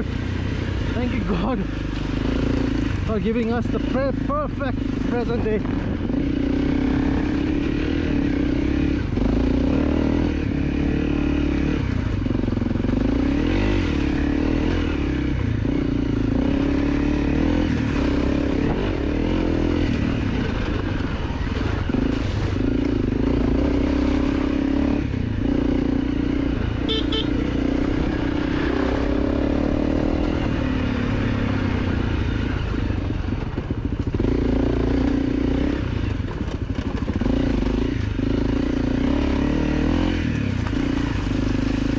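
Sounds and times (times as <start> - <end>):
dirt bike engine running: 0.0 - 41.9.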